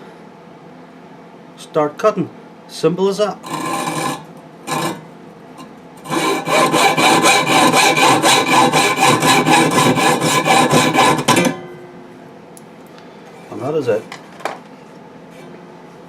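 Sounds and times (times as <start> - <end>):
hacksaw cutting metal rod: 3.4 - 5.0, 6.0 - 11.6.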